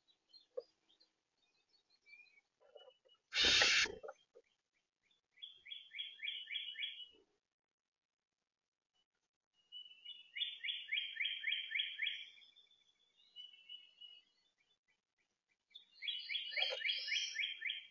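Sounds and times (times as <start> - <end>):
songbird whistling and trilling: 5.4 - 7.1, 9.8 - 12.5, 15.8 - 17.9.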